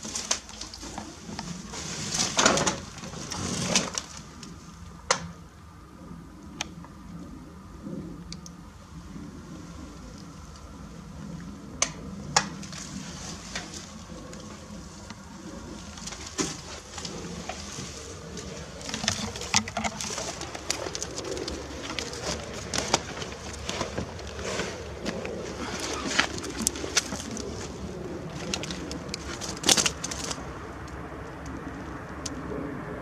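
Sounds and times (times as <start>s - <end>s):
clicks and crunches: 0.0s - 5.3s, 11.8s - 32.4s
pigeon cooing: 0.0s - 33.0s.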